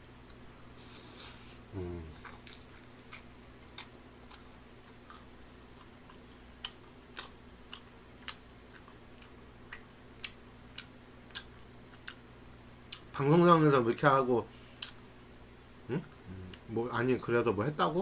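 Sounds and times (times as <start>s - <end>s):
faint hum: 0.0s - 18.0s.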